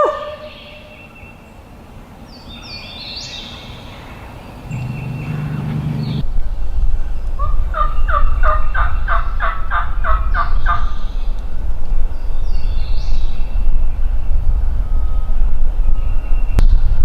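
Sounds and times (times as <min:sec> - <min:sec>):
low rumble: 0:03.6 - 0:07.4.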